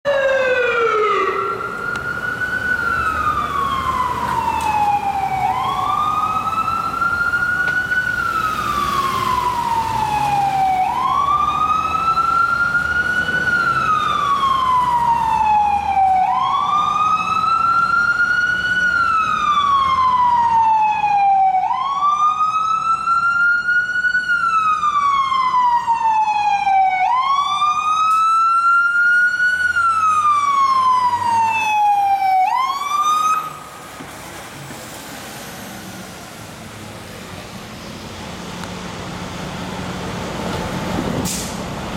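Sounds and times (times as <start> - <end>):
emergency siren wailing: 0.0 - 41.9
heavy vehicle engine rumble: 0.6 - 19.6, 33.0 - 41.9.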